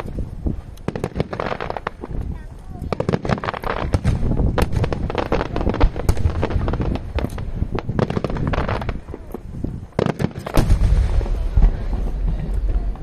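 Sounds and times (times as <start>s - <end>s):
fireworks bangs and crackles: 0.0s - 13.0s
fireworks booms: 0.0s - 13.0s
low rumbling: 10.6s - 13.0s.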